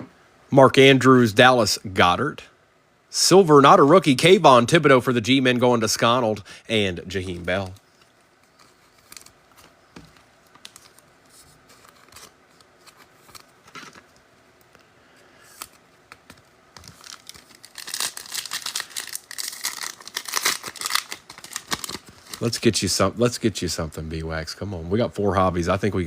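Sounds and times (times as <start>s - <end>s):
foil wrapper crinkling and tearing: 7.1s - 14.1s, 15.5s - 22.7s.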